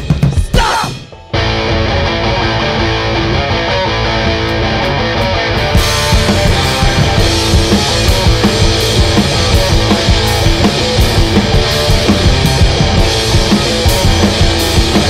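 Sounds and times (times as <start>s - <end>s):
drum kit and cymbals: 0.0s - 1.3s, 5.6s - 15.0s
live punk rock band: 0.0s - 15.0s
electric guitar: 1.0s - 15.0s.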